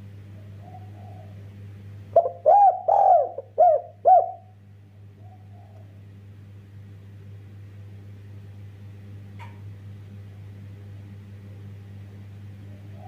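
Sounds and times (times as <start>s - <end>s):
steady low hum: 0.0s - 13.0s
dove cooing: 0.4s - 1.5s, 2.1s - 4.5s, 5.2s - 6.0s, 12.7s - 13.0s.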